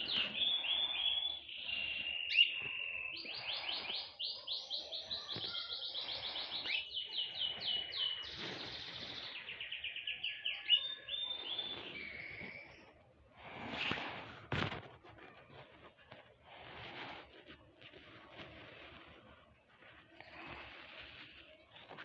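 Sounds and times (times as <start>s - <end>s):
small songbirds chirping: 0.0s - 14.2s.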